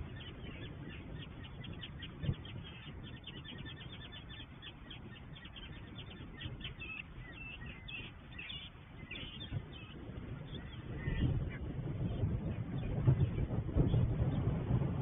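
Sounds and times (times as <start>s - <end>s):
birds calling over water: 0.0s - 14.4s.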